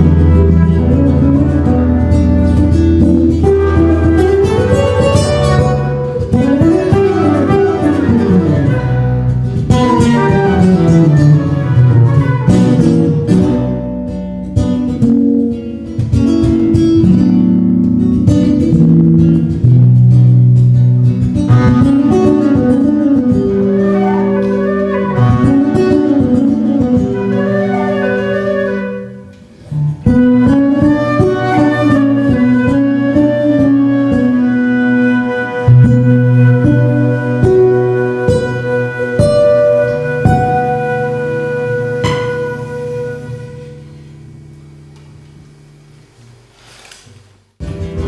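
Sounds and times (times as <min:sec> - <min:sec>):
trio playing instrumental music: 0:00.0 - 0:14.0, 0:21.5 - 0:44.0.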